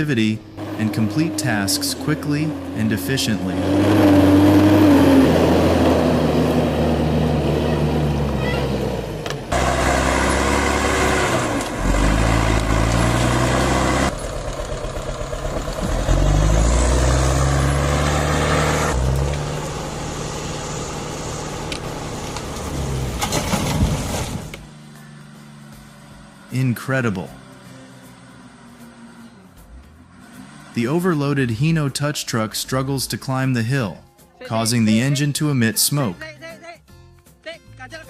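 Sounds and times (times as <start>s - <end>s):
tractor engine revving: 0.0s - 33.8s.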